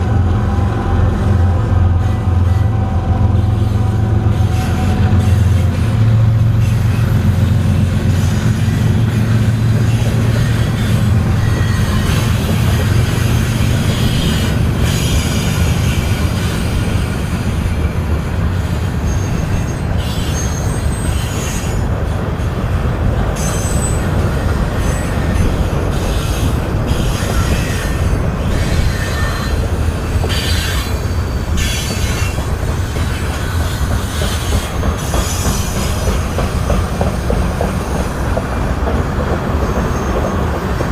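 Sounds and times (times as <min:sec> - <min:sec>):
locomotive engine drone: 0:00.0 - 0:40.9
train cars rumbling past: 0:00.0 - 0:40.9
high wheel squeals: 0:02.0 - 0:17.8, 0:18.6 - 0:21.9, 0:23.4 - 0:36.4.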